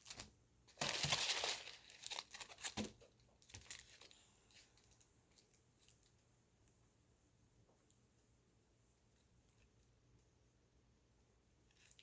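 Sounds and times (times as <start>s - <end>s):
packaging crinkling and rustling: 0.0s - 6.1s.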